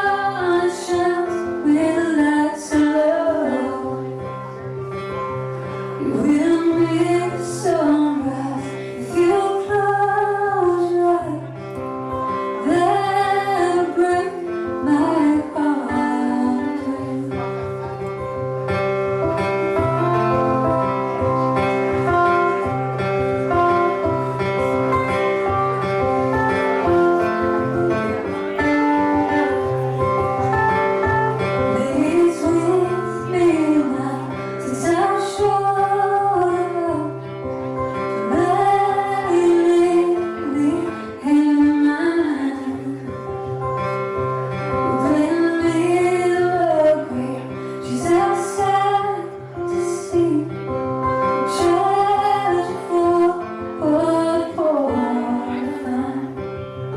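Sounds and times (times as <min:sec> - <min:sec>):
woman singing: 0:00.0 - 0:18.4, 0:19.4 - 0:56.9
acoustic guitar playing: 0:00.0 - 0:56.9.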